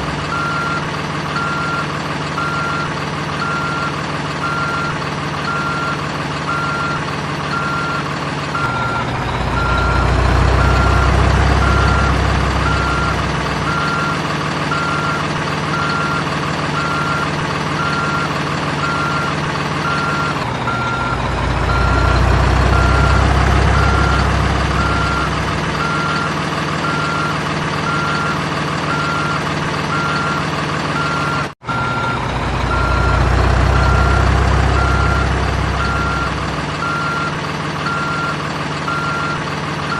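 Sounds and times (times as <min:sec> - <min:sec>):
diesel engine drone: 0:00.0 - 0:39.9
reversing beeper: 0:08.6 - 0:16.2, 0:16.8 - 0:28.3, 0:31.0 - 0:39.4.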